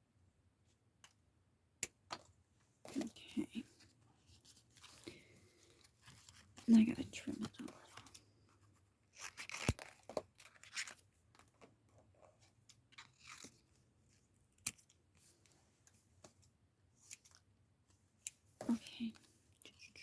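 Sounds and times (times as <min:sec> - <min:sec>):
scissors snipping paper: 0:09.1 - 0:11.0.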